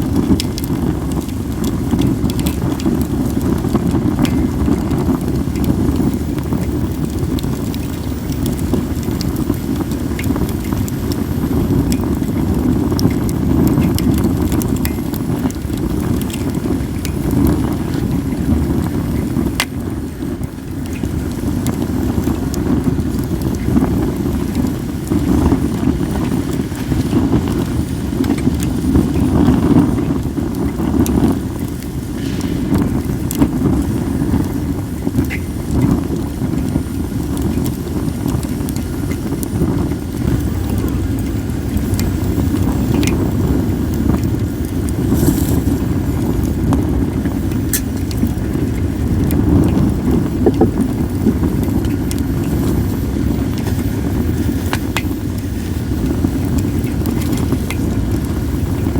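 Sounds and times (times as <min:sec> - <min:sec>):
wind on microphone: 0:00.0 - 0:58.9
wood fire crackling and popping: 0:00.0 - 0:58.9.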